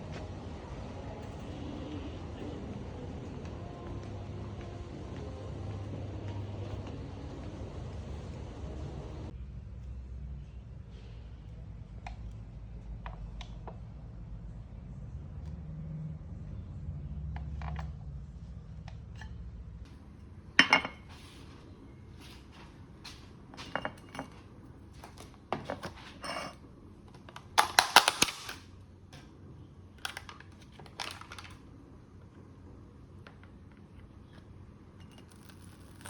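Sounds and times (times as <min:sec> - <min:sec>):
low hum: 0:00.0 - 0:23.3.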